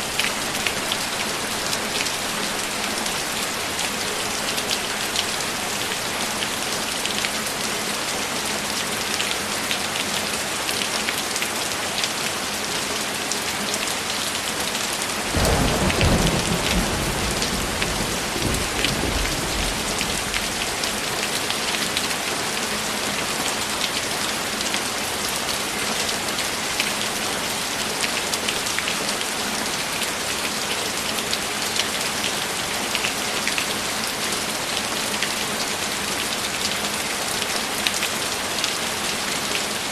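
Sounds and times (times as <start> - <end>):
heavy rain falling: 0.0 - 39.9
thunder rolling: 15.3 - 20.8.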